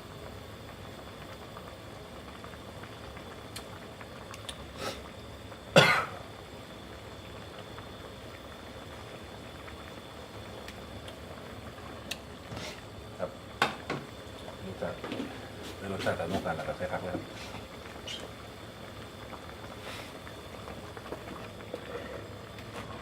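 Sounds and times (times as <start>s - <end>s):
pot of curry bubbling: 0.3s - 23.0s
person coughing: 5.8s - 6.2s.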